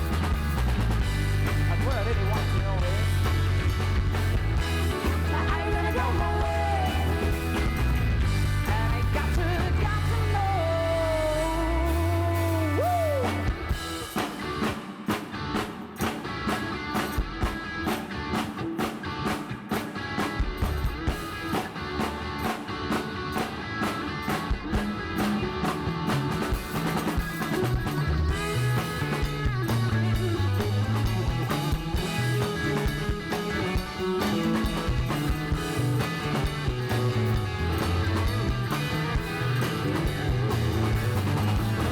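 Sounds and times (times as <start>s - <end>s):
bass notes: 0.0s - 14.1s, 25.2s - 41.9s
drum kit beat: 0.0s - 41.9s
gliding lead guitar line: 0.0s - 41.9s
guitar: 0.0s - 41.9s.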